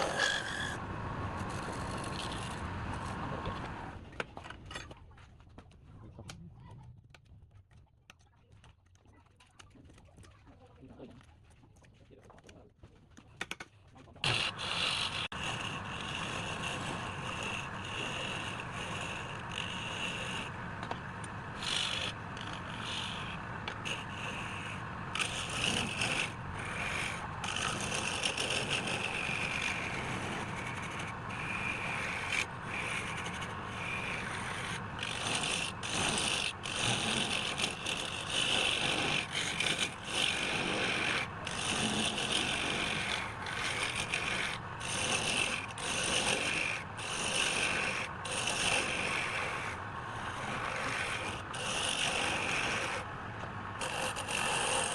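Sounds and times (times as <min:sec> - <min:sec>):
tool scraping against wood: 0:00.0 - 0:00.8, 0:01.4 - 0:03.8, 0:14.2 - 0:53.1, 0:53.8 - 0:54.9.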